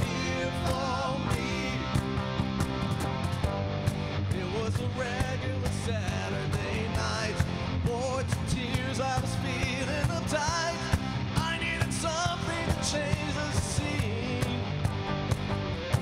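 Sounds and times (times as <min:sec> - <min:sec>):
man singing: 0:00.0 - 0:02.3, 0:04.3 - 0:14.8
bass guitar: 0:00.0 - 0:16.0
drums: 0:00.0 - 0:16.0
electric guitars: 0:00.0 - 0:16.0.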